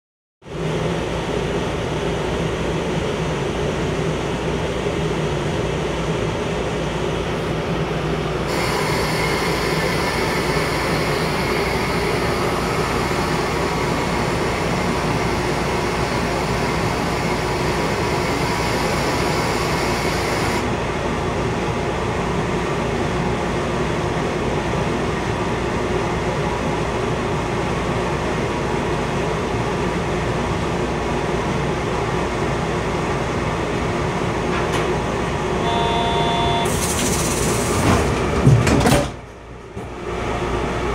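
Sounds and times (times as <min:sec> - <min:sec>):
train running hum: 0:00.5 - 0:40.9
short electronic beeps: 0:35.6 - 0:36.7.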